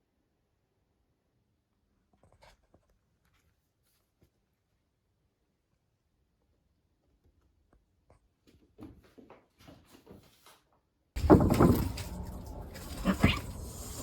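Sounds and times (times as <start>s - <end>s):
faint taps and scuffs: 7.7s - 10.7s
cats fighting: 11.2s - 14.0s
cat yowling: 12.7s - 14.0s.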